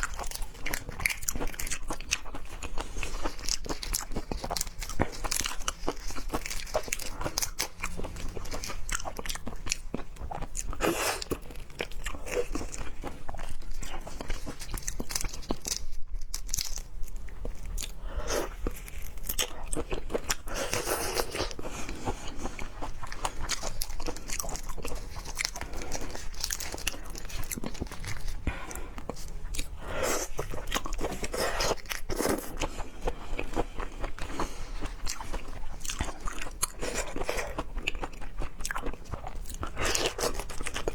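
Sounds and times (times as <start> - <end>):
wet crunchy chewing: 0.0 - 40.9.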